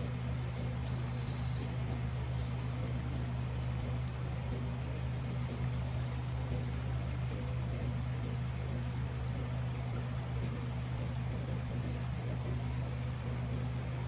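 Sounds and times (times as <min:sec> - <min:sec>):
bird-like chirps: 0:00.0 - 0:02.7
steady low hum: 0:00.0 - 0:14.0.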